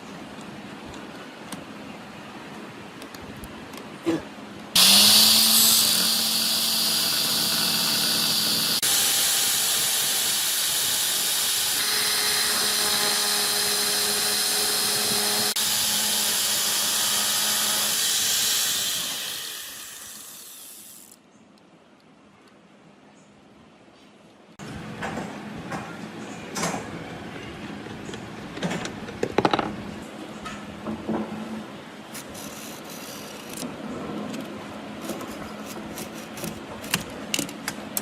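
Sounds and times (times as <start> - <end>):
angle grinder running: 4.8 - 21.2.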